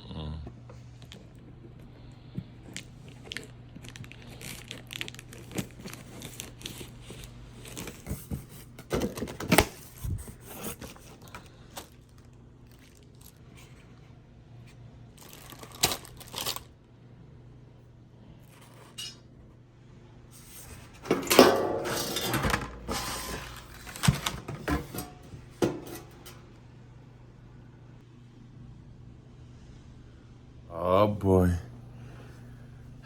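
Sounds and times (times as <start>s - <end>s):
packaging tearing and crinkling: 3.1s - 8.3s, 8.9s - 13.8s, 15.2s - 16.7s.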